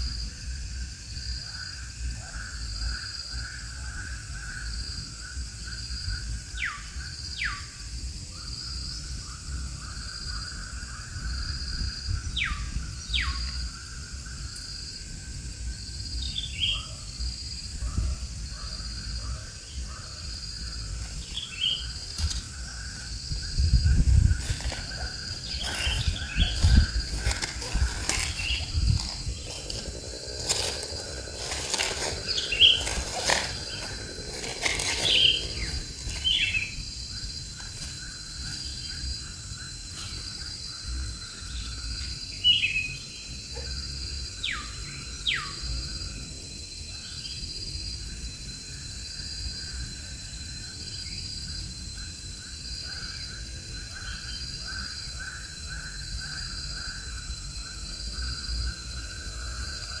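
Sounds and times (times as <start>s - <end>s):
insects chirping: 0.0s - 60.0s
bird calls: 24.2s - 36.8s.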